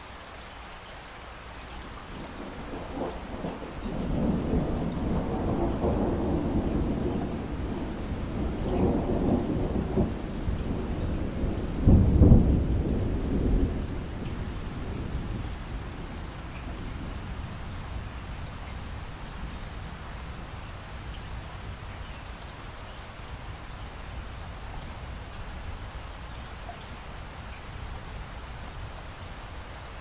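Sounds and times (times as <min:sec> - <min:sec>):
steady rainfall: 0:00.0 - 0:30.0
thunder rolling and booming: 0:02.2 - 0:18.1.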